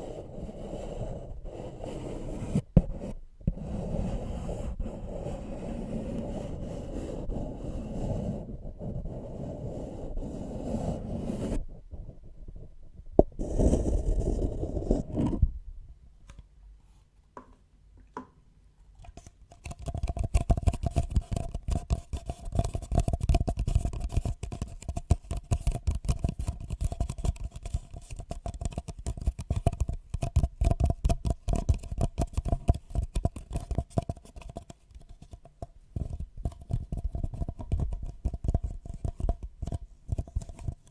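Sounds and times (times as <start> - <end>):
objects scraping against microphone: 4.6 - 15.6.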